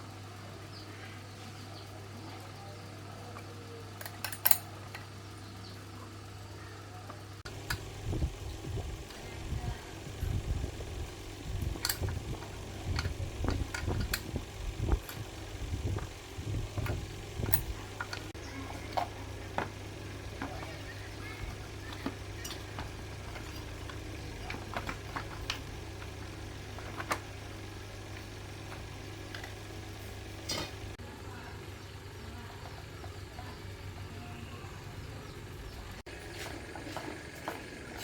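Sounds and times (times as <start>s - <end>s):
steady low hum: 0.0s - 38.0s
tools clicking and tapping: 4.0s - 5.1s, 11.8s - 15.2s, 21.4s - 26.2s.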